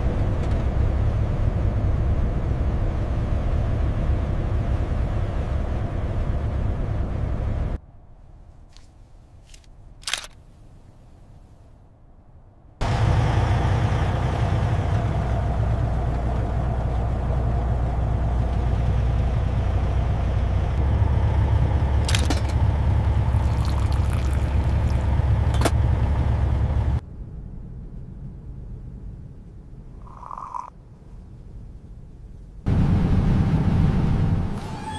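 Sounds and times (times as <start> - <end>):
diesel truck engine rumbling: 12.8 - 27.0, 32.7 - 34.9.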